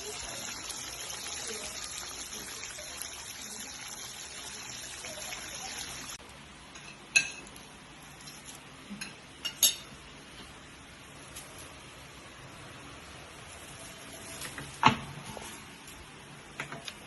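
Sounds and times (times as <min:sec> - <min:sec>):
water running: 0:00.0 - 0:06.2.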